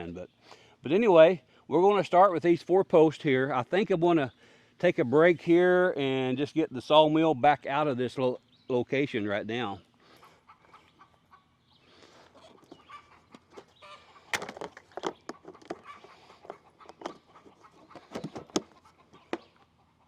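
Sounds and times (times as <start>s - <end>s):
chickens clucking: 10.1s - 11.6s, 12.3s - 14.5s, 15.3s - 20.0s.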